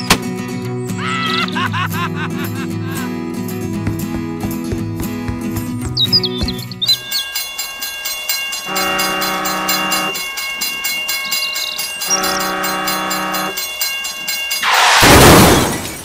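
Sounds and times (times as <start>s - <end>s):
train horn blasts: 8.6s - 10.2s, 12.0s - 13.6s.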